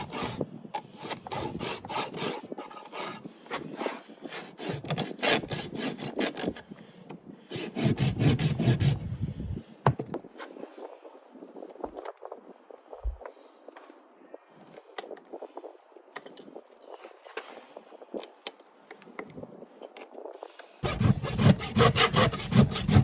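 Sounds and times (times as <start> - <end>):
rasp filing a hoof: 0.0 - 0.4, 1.0 - 6.6, 7.5 - 9.1, 20.8 - 23.0.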